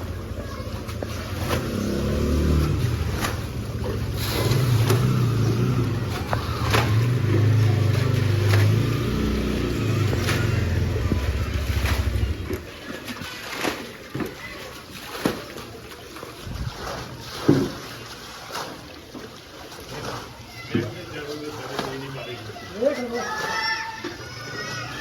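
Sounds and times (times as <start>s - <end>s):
sharp knocks or splashes: 0.0s - 22.2s
engine revving: 1.3s - 12.6s.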